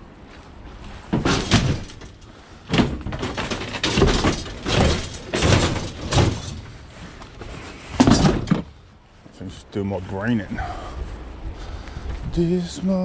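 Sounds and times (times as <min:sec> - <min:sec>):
scrap items knocking and clunking: 0:01.0 - 0:08.8.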